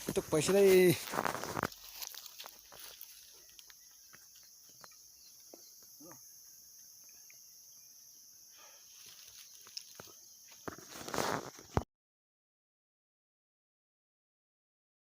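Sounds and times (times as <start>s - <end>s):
insect chorus droning: 0.0s - 11.8s.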